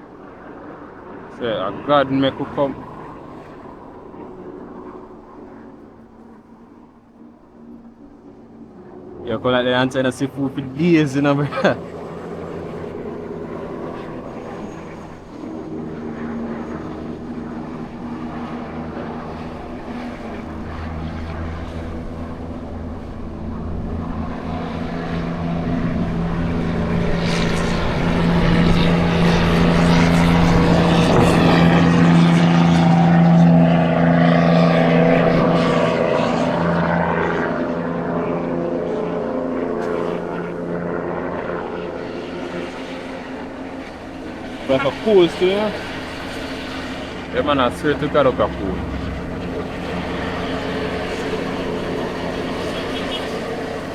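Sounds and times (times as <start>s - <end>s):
truck diesel engine droning: 44.6s - 53.9s.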